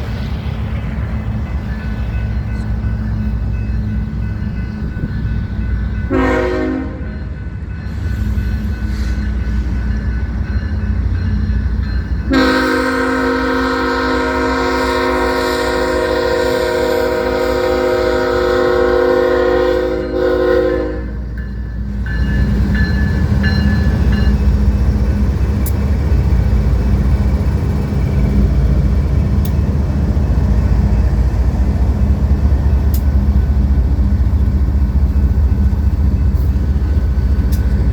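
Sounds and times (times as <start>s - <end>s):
diesel locomotive rumble: 0.0s - 37.9s
train air horn blasts: 6.1s - 7.1s, 12.3s - 21.3s.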